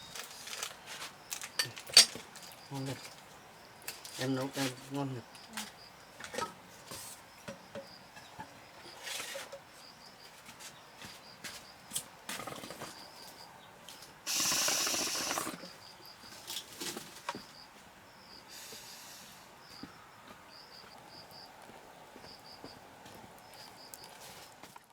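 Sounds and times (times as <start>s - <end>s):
insects chirping: 0.0s - 24.5s
rustling hiss: 14.2s - 17.3s, 18.4s - 19.6s.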